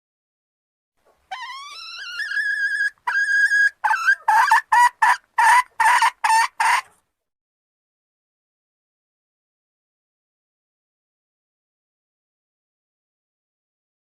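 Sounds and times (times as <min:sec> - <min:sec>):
junglefowl hen calling: 0:01.3 - 0:07.0.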